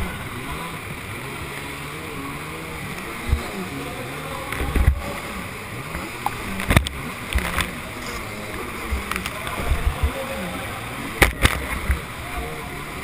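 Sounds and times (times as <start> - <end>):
jet ski engine running: 0.0 - 13.0
water and wind rushing: 0.0 - 13.0
hull thumping on water: 2.9 - 3.7, 4.4 - 5.2, 5.9 - 8.0, 8.6 - 10.4, 11.1 - 12.1.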